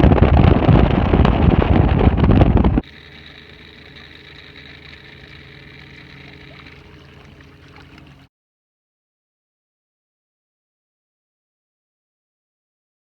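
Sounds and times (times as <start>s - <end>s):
wind on microphone: 0.0s - 8.3s
engine idling hum: 1.5s - 8.3s.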